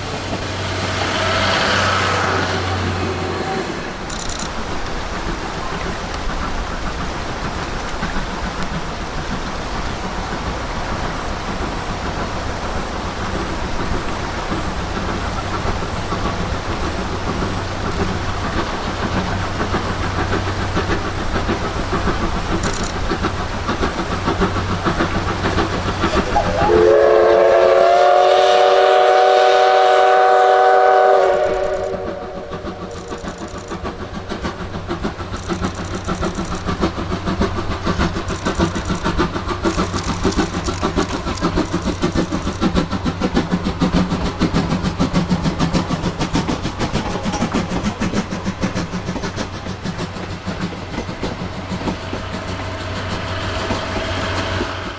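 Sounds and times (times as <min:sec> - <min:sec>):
steam locomotive wheels clattering: 0:00.0 - 0:54.9
steam whistle blast: 0:26.2 - 0:32.6.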